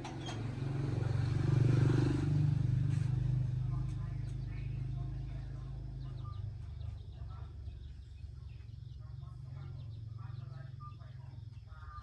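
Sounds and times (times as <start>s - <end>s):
birds chirping: 0.0s - 12.0s
low engine hum: 0.0s - 12.0s.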